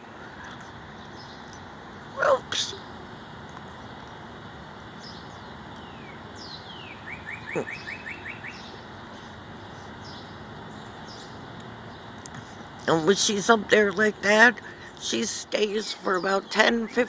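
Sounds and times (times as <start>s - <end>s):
steady background hum: 0.0s - 17.0s
songbird whistling and trilling: 5.1s - 8.8s.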